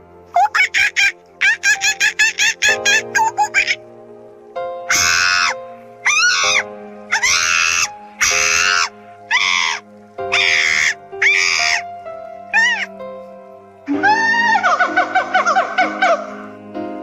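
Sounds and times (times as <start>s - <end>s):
background music of held notes: 0.0s - 17.0s
monkey cries: 0.3s - 3.8s, 4.9s - 11.9s, 12.5s - 13.0s, 13.9s - 16.4s.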